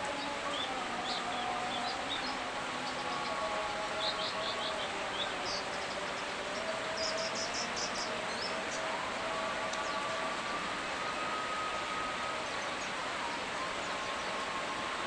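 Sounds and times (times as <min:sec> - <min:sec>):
rain hiss: 0:00.0 - 0:15.0.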